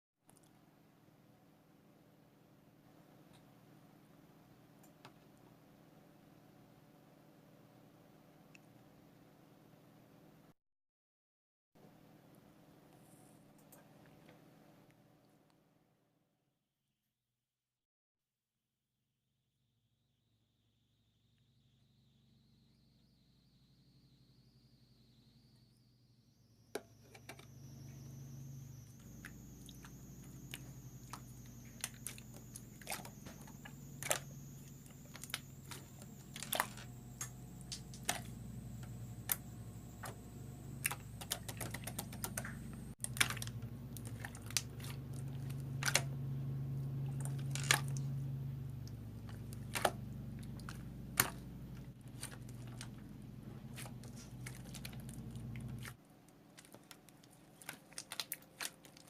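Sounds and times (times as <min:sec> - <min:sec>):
faint high whine: 0:20.0 - 0:56.0
low hum: 0:20.5 - 0:56.0.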